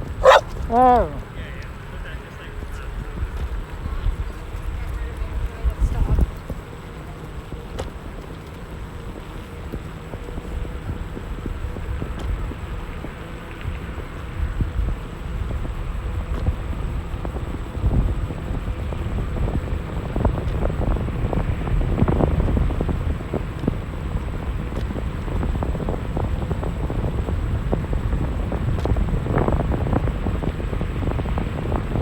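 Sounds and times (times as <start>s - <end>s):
wind buffeting microphone: 10.1s - 32.0s.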